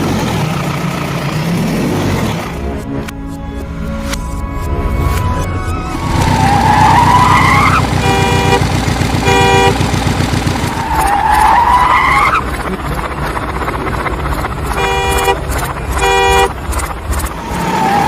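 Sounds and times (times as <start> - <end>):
music: 2.6 - 6.4
rising tyre squeal whine: 4.6 - 9.9, 10.5 - 12.7, 14.7 - 18.0
short horn honks: 7.9 - 9.9, 14.8 - 15.4, 16.0 - 16.6
low pulsing cartoon engine rumble: 11.8 - 17.6.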